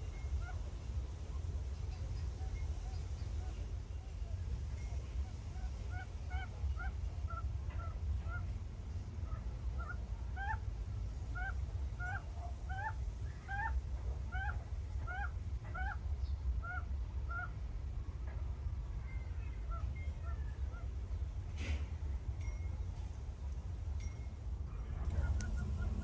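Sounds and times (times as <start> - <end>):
bird calling: 24.8 - 26.0.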